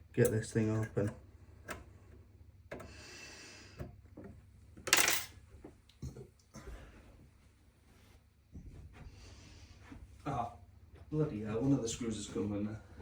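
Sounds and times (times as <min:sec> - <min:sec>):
small metal parts clinking: 0:04.9 - 0:05.3.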